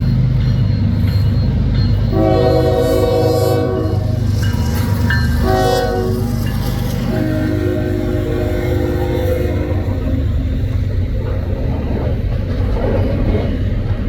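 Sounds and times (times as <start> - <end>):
diesel locomotives rumbling: 0.0 - 14.0
locomotive air horn: 2.1 - 4.3, 5.0 - 10.4.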